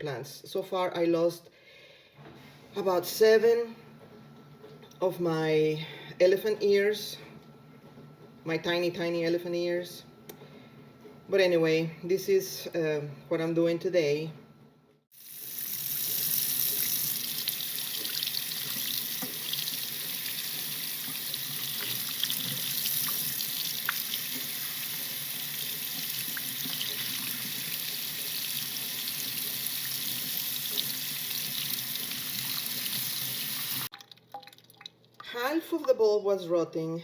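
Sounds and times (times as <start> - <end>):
water running from a tap: 15.2 - 34.8.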